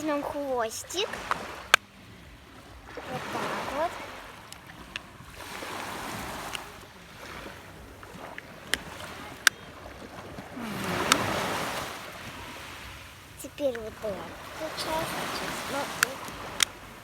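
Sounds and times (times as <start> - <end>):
small sea waves washing in: 0.0 - 17.0
sharp clicks: 15.8 - 16.8.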